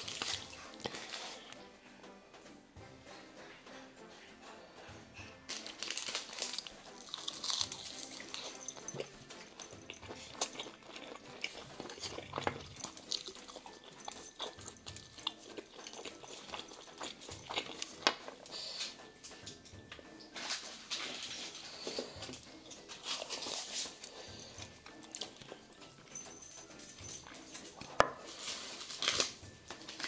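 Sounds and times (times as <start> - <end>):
chewing: 0.0 - 1.6, 5.5 - 25.9, 27.2 - 30.0
crunching of crisp food: 0.0 - 1.6, 5.5 - 19.0, 20.4 - 25.6, 27.5 - 30.0.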